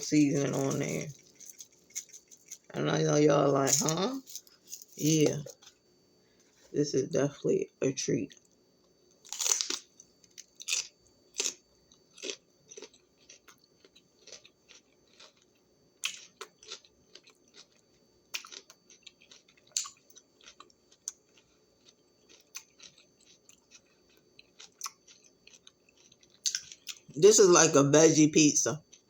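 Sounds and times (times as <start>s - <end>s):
crunchy bites of bell pepper: 9.2s - 21.4s.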